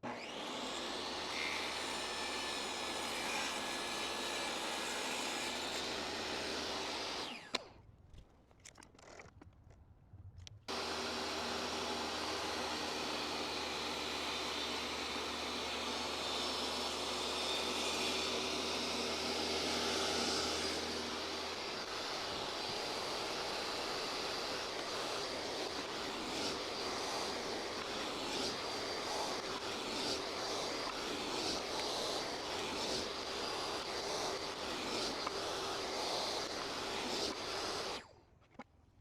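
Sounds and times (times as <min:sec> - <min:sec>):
power saw ripping a board: 0:10.7 - 0:38.1.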